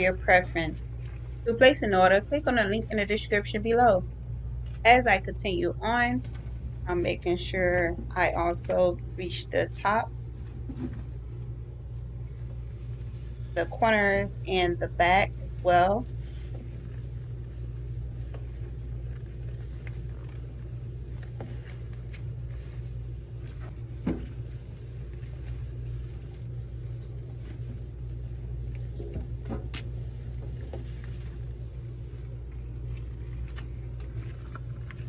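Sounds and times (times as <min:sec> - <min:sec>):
steady low hum: 0:00.0 - 0:35.0
towel rubbing: 0:06.4 - 0:35.0.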